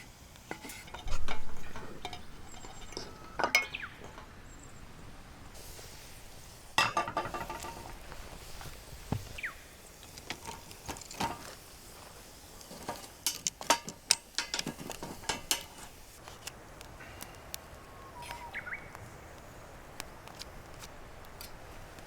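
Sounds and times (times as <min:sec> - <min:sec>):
bird calling with falling notes: 0:09.3 - 0:09.8, 0:17.6 - 0:19.2.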